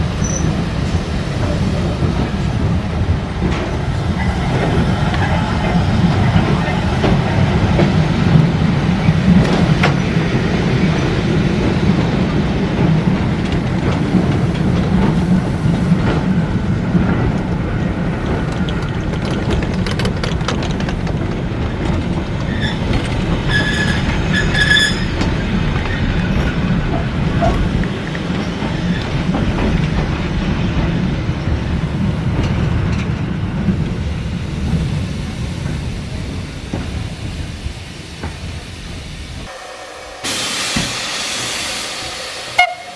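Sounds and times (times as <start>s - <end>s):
train rumbling on rails: 0.0s - 42.9s
high-pitched wheel squeals: 23.5s - 25.3s.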